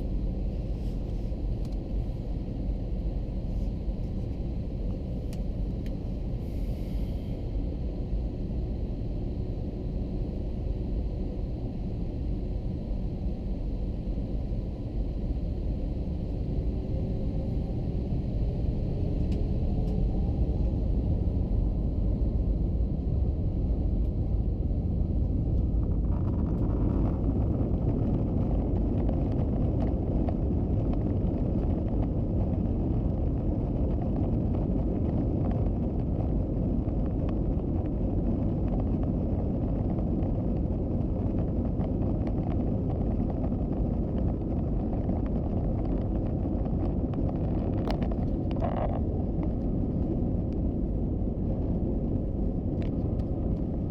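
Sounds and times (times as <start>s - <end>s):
airliner engines rumbling: 0.0s - 53.9s.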